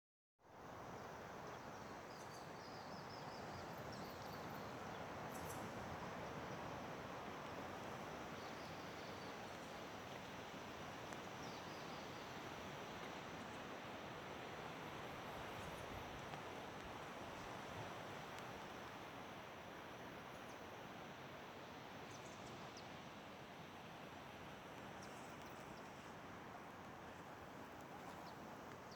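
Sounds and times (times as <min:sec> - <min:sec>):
faint outdoor background rush: 0:00.4 - 0:28.9.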